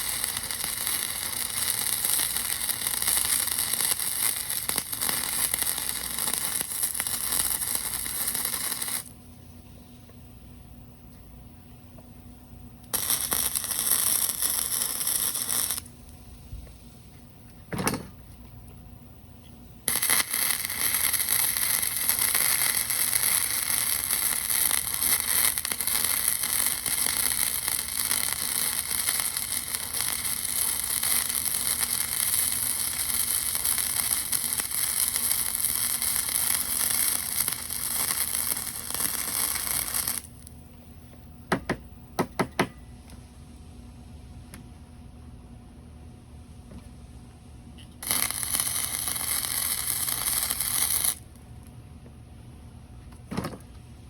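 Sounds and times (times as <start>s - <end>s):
welding arc crackling and hissing: 0.0s - 9.2s, 12.8s - 17.2s, 19.8s - 41.1s, 48.0s - 51.4s.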